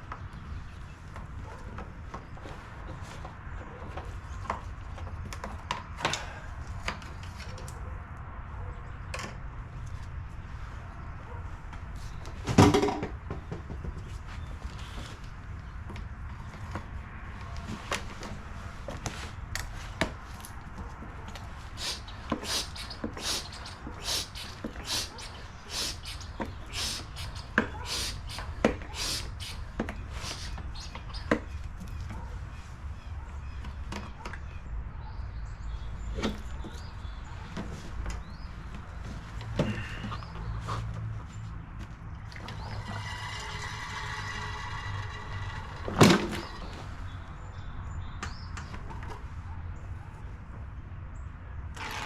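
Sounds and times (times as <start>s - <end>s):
hand pump hissing strokes: 21.7s - 30.6s, 42.4s - 46.8s.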